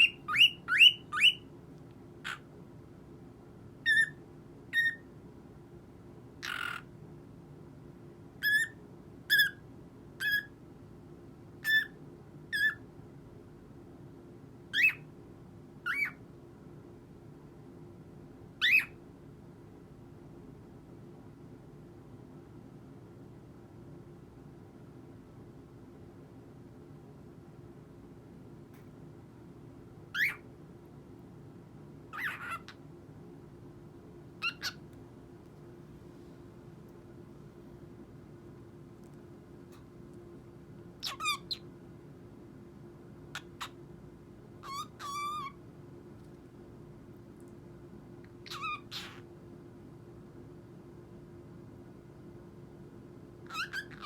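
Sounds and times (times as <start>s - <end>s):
cockatiel chirping: 0.0s - 1.4s, 2.2s - 2.4s, 3.9s - 4.2s, 4.8s - 5.1s, 6.4s - 6.9s, 8.4s - 9.6s, 10.2s - 10.5s, 11.6s - 12.0s, 12.6s - 12.8s, 14.8s - 15.1s, 15.9s - 16.2s, 18.6s - 19.0s, 30.2s - 30.4s, 32.2s - 32.8s, 34.4s - 34.8s, 41.0s - 41.6s, 43.4s - 43.8s, 44.6s - 45.6s, 48.4s - 49.2s, 53.4s - 54.0s
cockatiel squawk: 0.0s - 1.4s, 2.2s - 2.5s, 3.8s - 5.0s, 6.4s - 6.9s, 8.4s - 9.6s, 10.2s - 10.5s, 11.6s - 12.8s, 14.7s - 15.1s, 15.8s - 16.2s, 18.6s - 19.0s, 30.1s - 30.4s, 32.1s - 32.8s, 34.4s - 34.8s, 41.0s - 41.6s, 43.3s - 43.8s, 44.6s - 45.6s, 48.4s - 49.2s, 53.4s - 54.0s.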